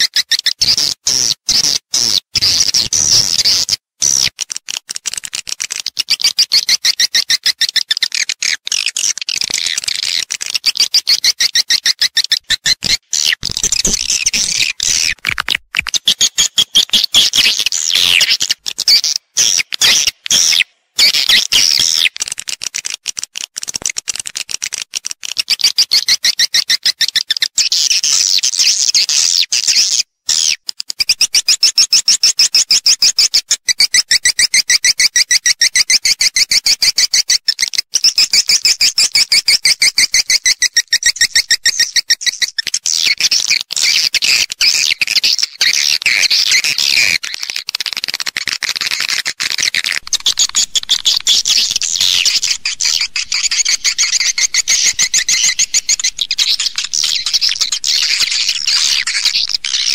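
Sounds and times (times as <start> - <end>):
recorded swiftlet chatter: 47.6 - 59.9.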